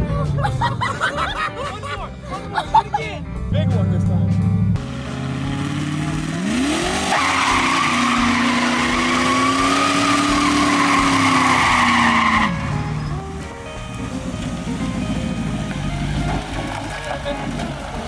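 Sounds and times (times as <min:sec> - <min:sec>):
car engine revving: 0:00.0 - 0:18.0
tyres squealing: 0:04.9 - 0:18.0.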